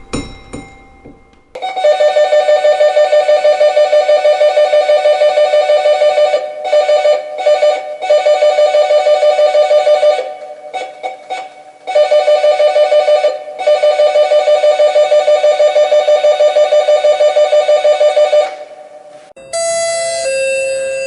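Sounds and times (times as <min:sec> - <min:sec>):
electronic doorbell pulsing tone: 0:19.4 - 0:21.0.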